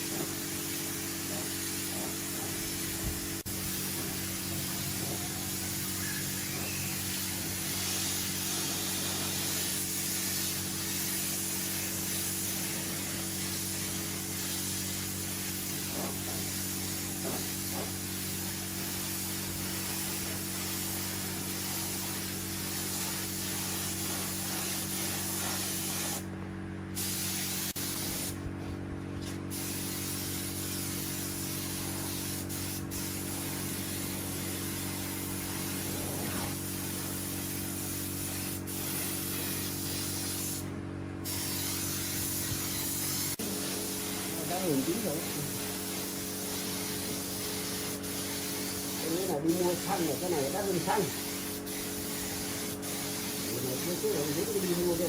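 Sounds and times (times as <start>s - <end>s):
loud machine hiss: 0.0s - 26.2s, 41.3s - 55.0s.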